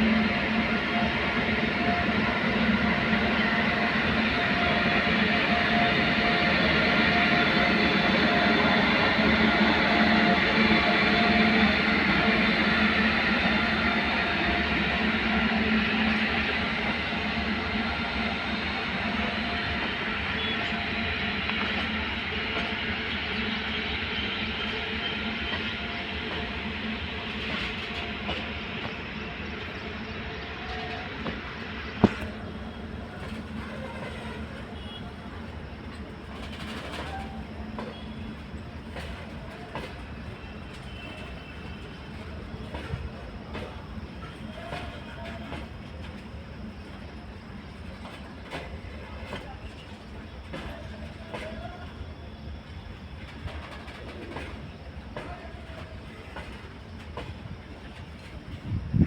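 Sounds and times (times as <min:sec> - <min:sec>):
freight train rumbling past: 0:00.0 - 0:59.0
wheels clacking over rail joints: 0:53.2 - 0:58.8.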